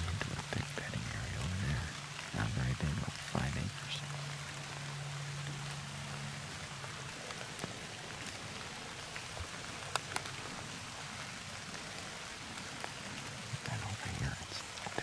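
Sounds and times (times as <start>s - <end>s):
rain falling on dead leaves: 0.0s - 15.0s.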